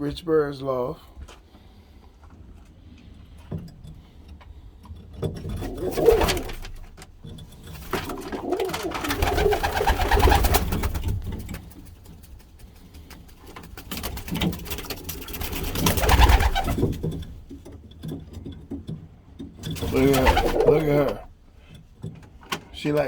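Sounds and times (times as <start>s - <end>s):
pigeons cooing: 5.5s - 6.8s, 7.7s - 11.0s, 15.4s - 17.0s, 19.8s - 21.3s.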